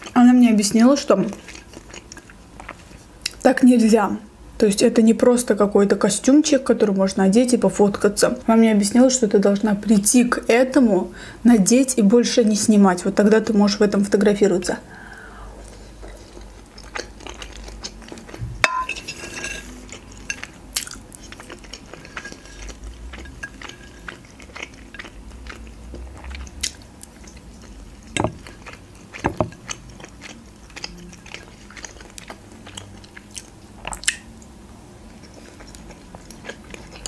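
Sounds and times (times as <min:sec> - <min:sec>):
person chewing: 0:01.2 - 0:03.4, 0:15.6 - 0:18.5, 0:19.7 - 0:34.3, 0:35.1 - 0:37.0
fork scraping on ceramic plate: 0:18.7 - 0:19.8.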